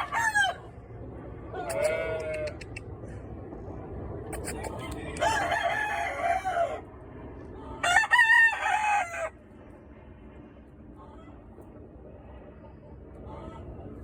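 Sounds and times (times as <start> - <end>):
roosters crowing: 0.0 - 2.8, 4.6 - 7.0, 7.6 - 9.5.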